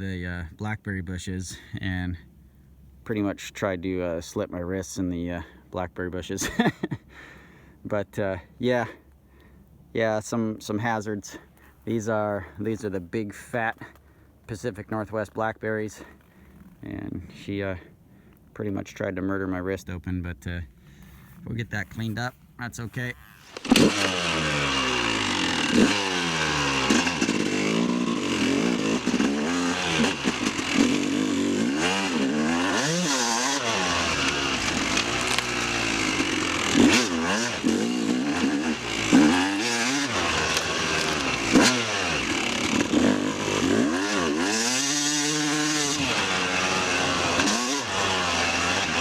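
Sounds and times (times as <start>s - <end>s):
two-stroke dirt bike engine revving: 22.9s - 49.0s.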